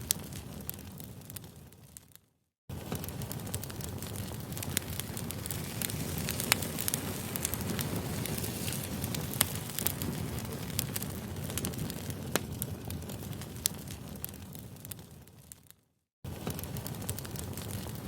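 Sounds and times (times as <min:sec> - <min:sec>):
wood popping and crackling: 0:00.0 - 0:18.0
flames rushing: 0:02.7 - 0:15.3, 0:16.3 - 0:18.0.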